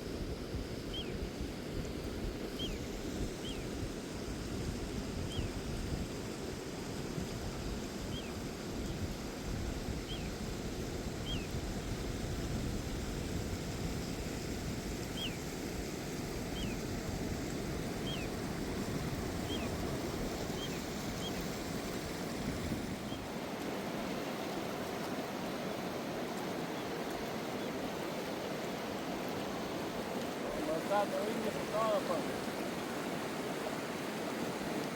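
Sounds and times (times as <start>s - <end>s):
wind rumble on microphone: 0.0s - 34.9s
river water rushing: 15.6s - 34.9s.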